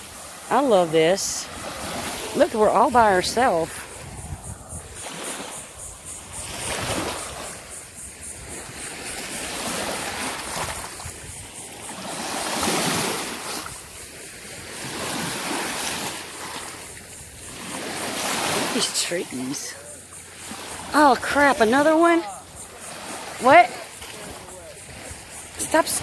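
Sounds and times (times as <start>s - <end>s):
small waves washing on shore: 0.0s - 26.0s.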